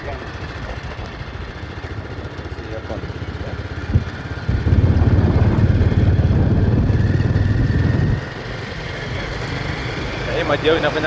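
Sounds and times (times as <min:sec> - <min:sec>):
engine low pulsing rumble: 0:00.0 - 0:08.2.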